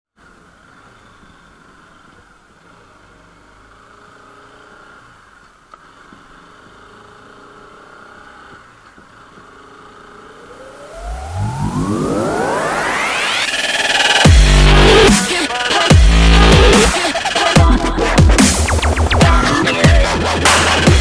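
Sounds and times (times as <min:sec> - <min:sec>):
rising electronic sweep: 0:10.1 - 0:21.0
music: 0:10.5 - 0:21.0.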